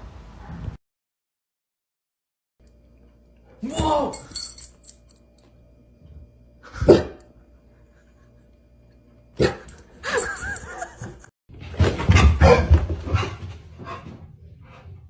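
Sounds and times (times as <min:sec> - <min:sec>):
dog barking: 0:06.8 - 0:07.2, 0:12.3 - 0:12.8.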